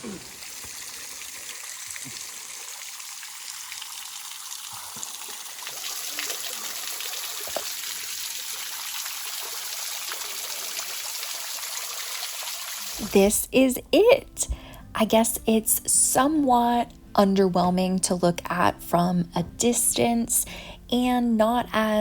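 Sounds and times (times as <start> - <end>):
running water rushing and trickling: 0.0 - 13.1.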